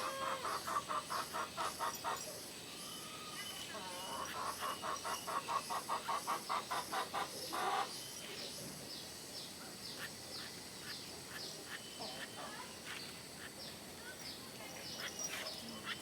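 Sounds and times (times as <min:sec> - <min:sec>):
fast bird calls: 0:00.0 - 0:08.2.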